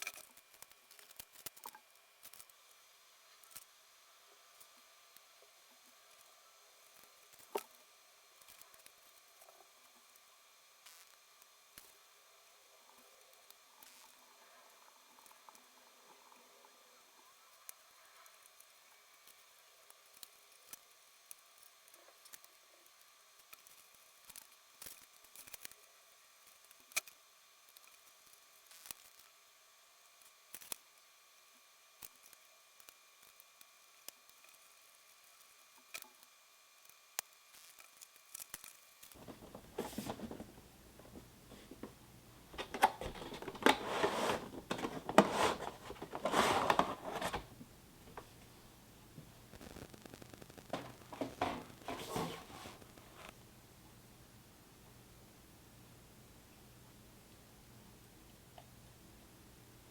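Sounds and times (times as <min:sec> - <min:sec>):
crinkling and rustling material: 0:37.5 - 0:48.5, 0:49.2 - 0:53.4.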